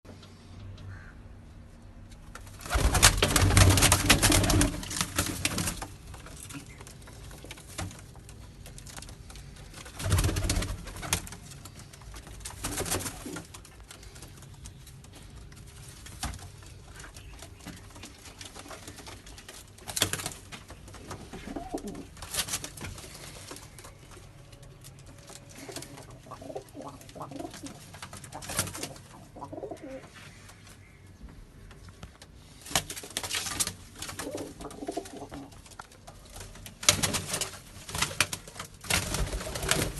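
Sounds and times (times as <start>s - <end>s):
loud rustling bursts: 2.4s - 29.1s, 32.4s - 39.9s
pigeons cooing: 21.0s - 22.3s, 25.1s - 31.0s, 34.0s - 35.9s.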